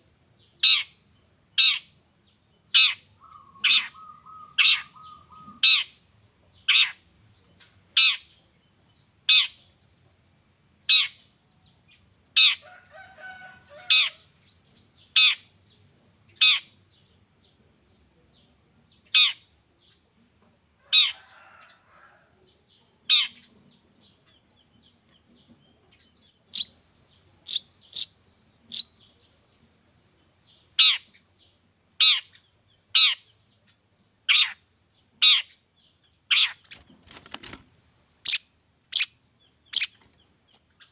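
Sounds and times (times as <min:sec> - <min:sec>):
bird giving sharp calls: 0:00.6 - 0:01.0, 0:01.6 - 0:01.9, 0:02.7 - 0:06.0, 0:15.2 - 0:15.5, 0:19.1 - 0:19.4, 0:30.8 - 0:31.2, 0:32.0 - 0:32.4, 0:33.0 - 0:33.3, 0:34.3 - 0:34.6, 0:35.2 - 0:35.6, 0:36.3 - 0:36.8, 0:38.2 - 0:40.9
soft bird twittering: 0:00.6 - 0:09.7, 0:23.1 - 0:36.9, 0:38.2 - 0:40.9.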